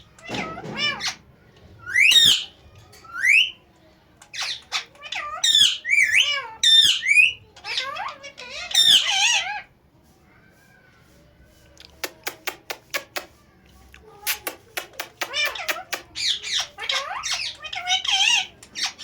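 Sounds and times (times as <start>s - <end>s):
parrot squawking: 0.0s - 1.2s, 1.8s - 3.5s, 4.4s - 9.7s, 15.1s - 19.0s
parrot warbling chattering calls: 1.8s - 3.5s, 4.3s - 9.7s, 15.1s - 19.0s.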